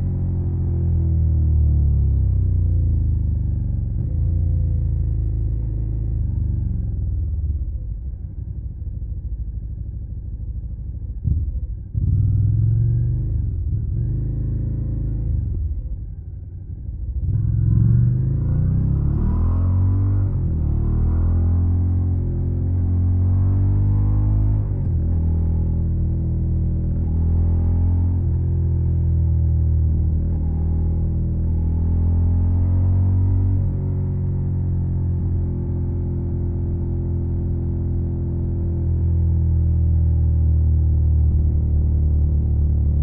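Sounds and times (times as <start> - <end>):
motorcycle engine revving: 11.3 - 15.4, 17.2 - 43.0.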